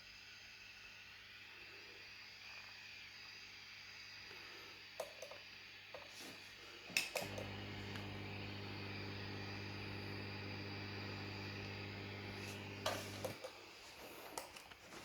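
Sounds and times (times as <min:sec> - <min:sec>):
amplifier electrical hum: 0:07.2 - 0:13.4.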